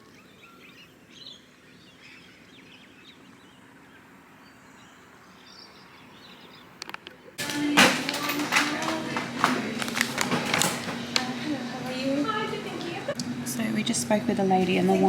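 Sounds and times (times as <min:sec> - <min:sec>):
faint birds chirping: 0:00.0 - 0:07.4
outdoor background hiss: 0:00.0 - 0:07.8.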